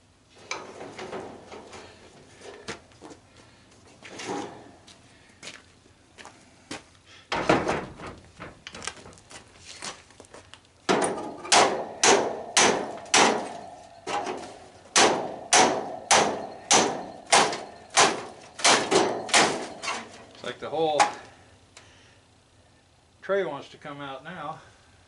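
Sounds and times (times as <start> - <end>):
hammer striking metal part: 10.9 - 20.3.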